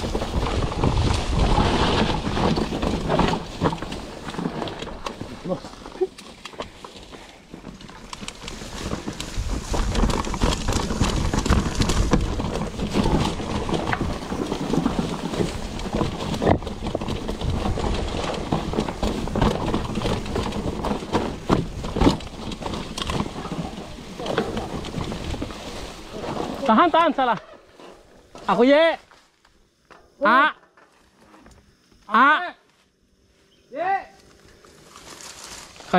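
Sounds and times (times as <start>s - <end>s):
bike rattling over bumps: 0.0s - 29.0s, 34.5s - 35.9s.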